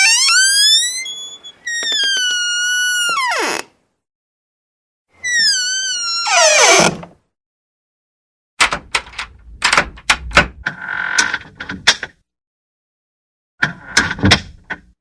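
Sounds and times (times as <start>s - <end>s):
door hinge squeak: 0.0s - 3.7s, 5.2s - 7.0s.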